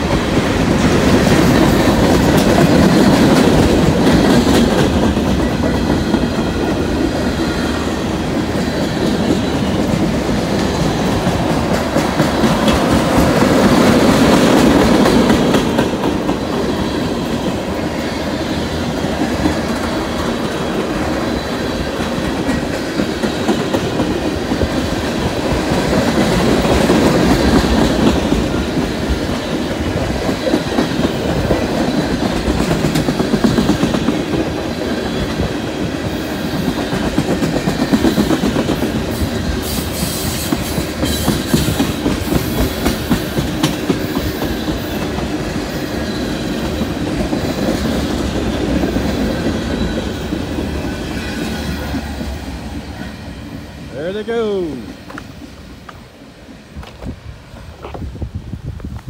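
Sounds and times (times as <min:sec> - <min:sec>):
train wheels rumbling on rails: 0:00.0 - 0:59.0
wheels clicking over rail joints: 0:08.2 - 0:17.8, 0:36.5 - 0:45.7.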